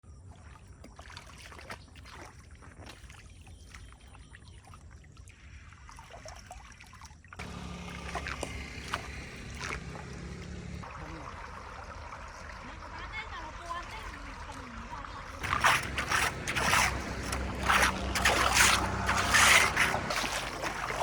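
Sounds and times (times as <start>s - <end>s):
water trickling and sloshing: 0.0s - 21.0s
water drips: 4.6s - 21.0s
low hum: 7.4s - 14.6s, 15.4s - 21.0s
water rushing: 7.4s - 21.0s.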